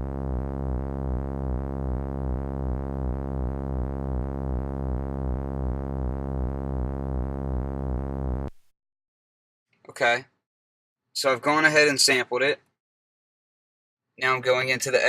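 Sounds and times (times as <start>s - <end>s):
synthesizer low pulsing note: 0.0s - 8.6s.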